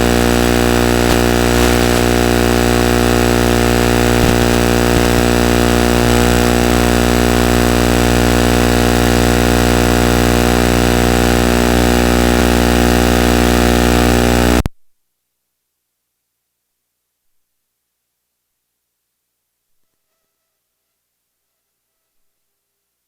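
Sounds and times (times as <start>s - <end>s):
loud droning hum: 0.0s - 14.6s.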